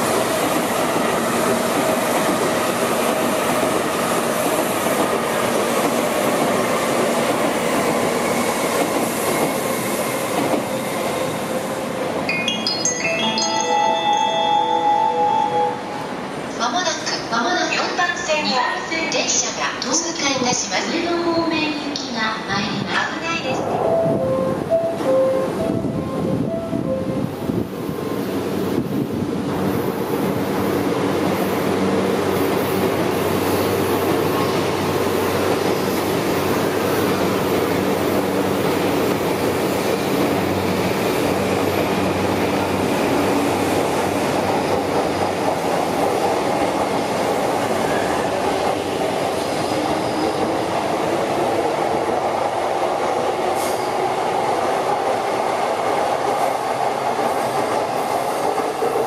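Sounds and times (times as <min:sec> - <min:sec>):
train wheels clattering on rails: 0:00.0 - 0:11.8, 0:28.0 - 0:59.0
train steady hum: 0:00.0 - 0:59.0.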